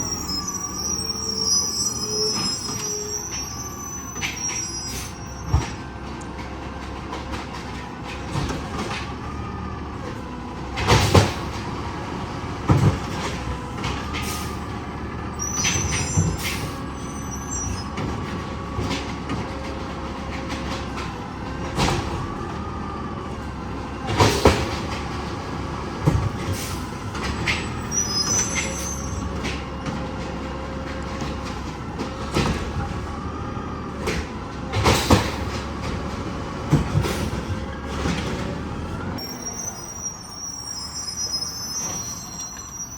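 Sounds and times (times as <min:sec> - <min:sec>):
high squeals: 0:00.0 - 0:05.6, 0:15.3 - 0:18.0, 0:26.6 - 0:29.6, 0:39.2 - 0:42.9
garbage truck engine running: 0:00.0 - 0:42.9.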